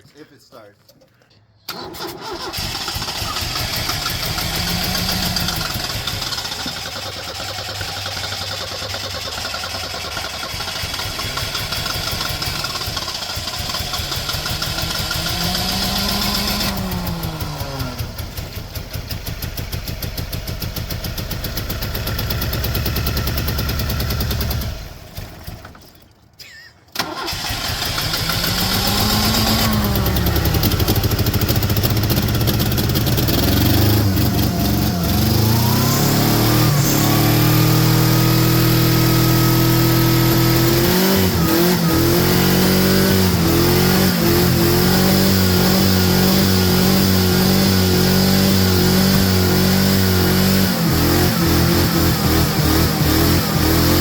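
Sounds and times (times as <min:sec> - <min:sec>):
car engine revving: 0:02.2 - 0:09.3, 0:10.4 - 0:24.8, 0:27.0 - 0:54.0
uneven pulsing engine note: 0:13.7 - 0:18.9, 0:28.4 - 0:54.0.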